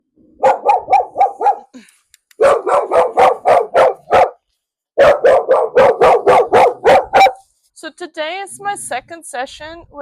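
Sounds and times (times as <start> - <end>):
dog barking: 0.4 - 1.7, 2.4 - 4.4, 5.0 - 7.5.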